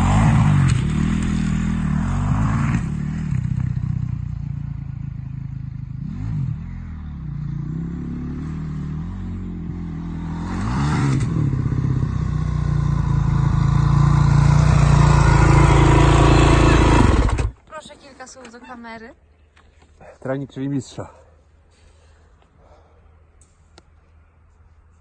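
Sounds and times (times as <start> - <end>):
motocross bike engine revving: 0.0 - 17.6.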